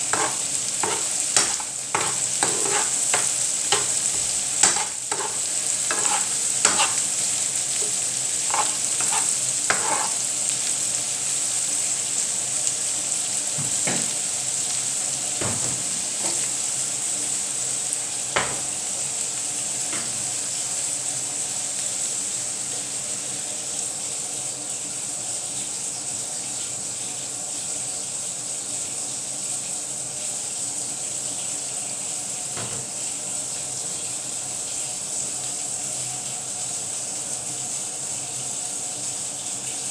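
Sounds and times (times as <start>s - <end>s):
utensil scraping a pan: 0.0s - 10.4s, 32.6s - 33.0s
omelette sizzling in a pan: 0.0s - 39.9s.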